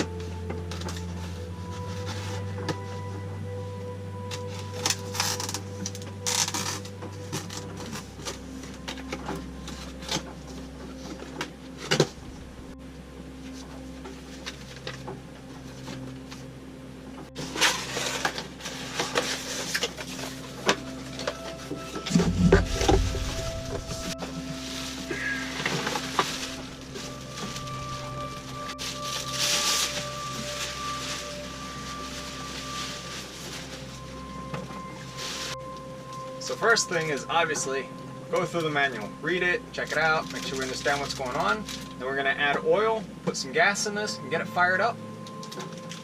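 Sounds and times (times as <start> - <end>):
faint steady hum: 0.0 - 46.0
rustling bursts: 17.8 - 34.3
heavy low thump: 22.1 - 24.6.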